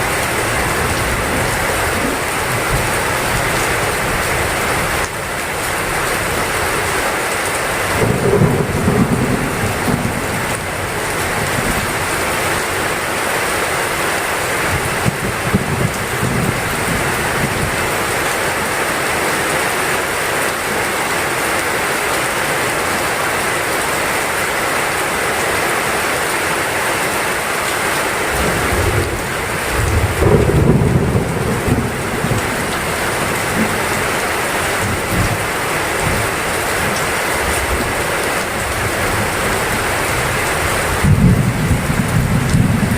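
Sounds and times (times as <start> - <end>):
heavy rain pouring: 0.0 - 42.9
thunder rumbling: 8.0 - 12.2, 14.7 - 18.0, 28.3 - 42.9.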